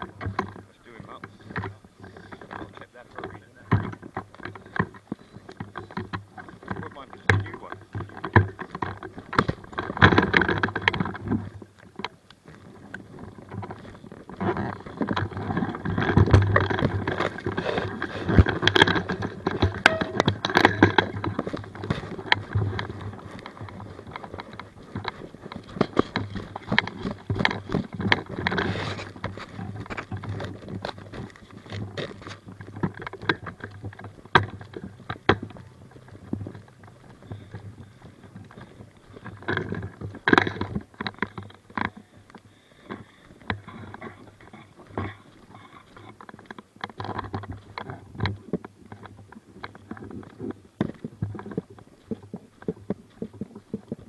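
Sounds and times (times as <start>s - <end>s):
footsteps on rough ground: 0.0s - 54.0s
low hum: 14.8s - 27.3s.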